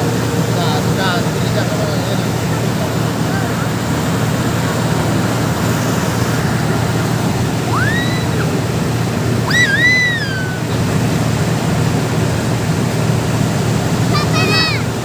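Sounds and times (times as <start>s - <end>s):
boat engine hum: 0.0s - 15.0s
rushing water and wind: 0.0s - 15.0s
short whistled calls: 7.7s - 8.5s, 9.5s - 10.7s.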